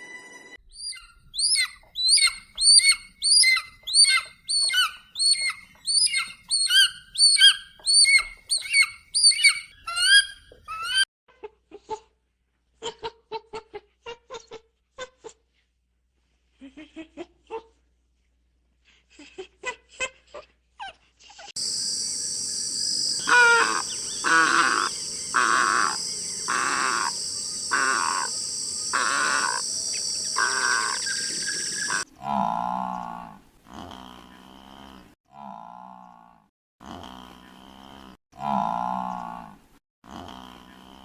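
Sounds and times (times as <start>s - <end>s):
animal calling: 0.7s - 11.0s, 21.6s - 33.0s
clucking calls: 23.2s - 32.1s
cow mooing: 31.9s - 41.0s.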